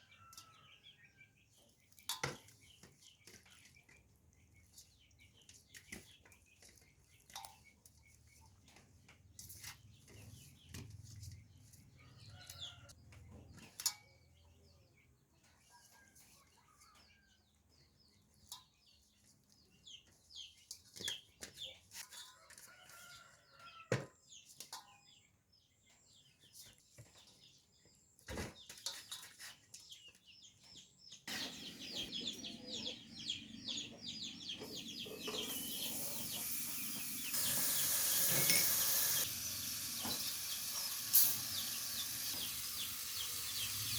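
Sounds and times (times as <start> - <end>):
chickens clucking: 31.2 - 43.9
food sizzling in pan: 35.5 - 43.9.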